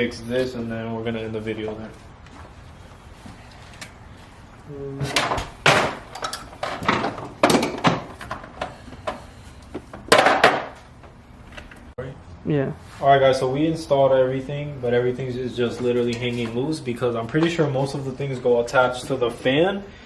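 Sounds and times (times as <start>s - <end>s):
car parts knocking and clunking: 5.0s - 11.8s.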